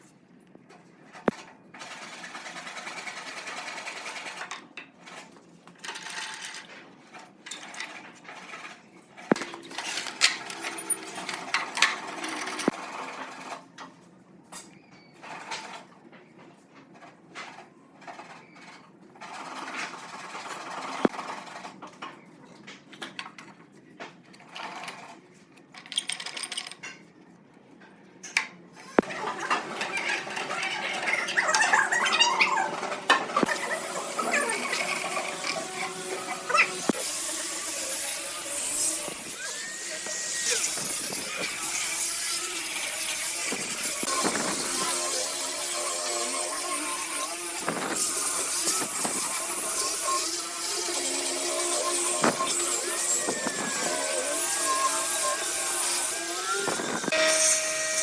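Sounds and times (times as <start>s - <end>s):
small power tool running: 33.4s - 58.0s.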